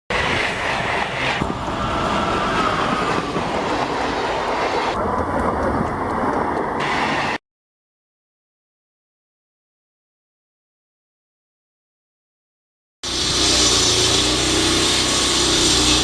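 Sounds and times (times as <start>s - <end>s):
faint wheel squeal: 0.1s - 7.4s, 13.1s - 16.0s
train rolling with wheel clatter: 0.1s - 7.4s, 13.0s - 16.0s.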